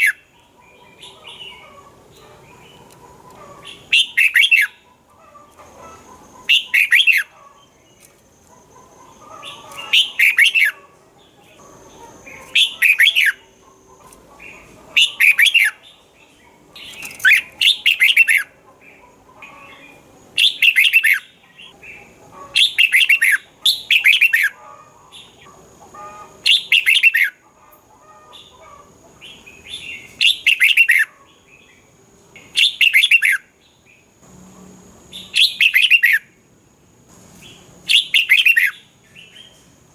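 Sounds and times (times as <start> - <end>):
bulbul singing warbled phrases: 0.0 - 2.9, 3.6 - 4.9, 5.9 - 8.0, 9.0 - 13.6, 14.4 - 25.4, 26.4 - 27.4, 32.4 - 33.4, 35.1 - 36.3.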